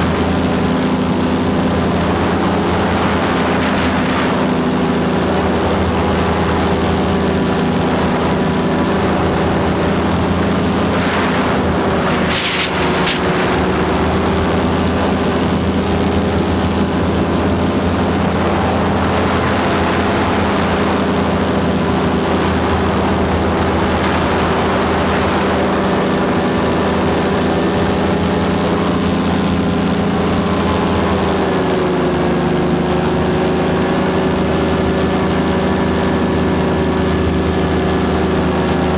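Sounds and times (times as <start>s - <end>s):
paramotor engine and propeller: 0.0s - 38.9s.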